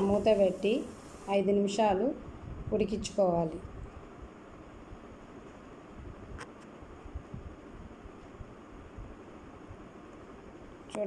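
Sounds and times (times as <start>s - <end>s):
curry frying in oil hiss: 0.0s - 1.8s.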